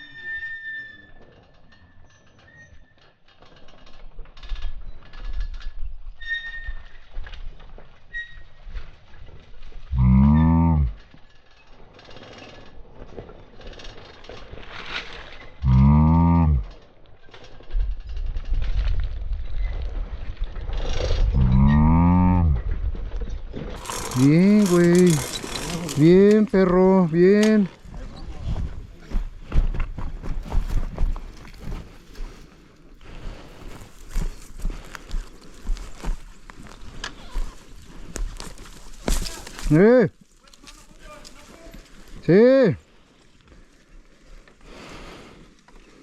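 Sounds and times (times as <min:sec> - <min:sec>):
motorbike rattling over rocks: 0:01.2 - 0:06.2, 0:06.8 - 0:32.4, 0:33.0 - 0:44.3
dirt bike brakes squealing: 0:06.2 - 0:07.0, 0:08.1 - 0:08.6.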